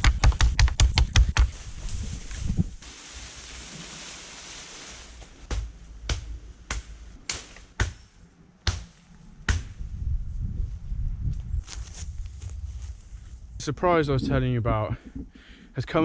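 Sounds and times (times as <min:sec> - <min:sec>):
sharp cracks of branches: 0:05.4 - 0:09.9.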